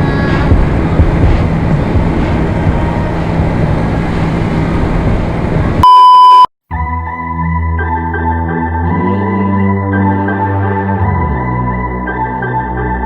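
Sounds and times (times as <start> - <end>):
music: 0.0 - 3.6, 6.7 - 13.0
motorcycle engine running: 0.0 - 5.8
wind noise: 0.0 - 5.8
loud pure beep: 5.8 - 6.5.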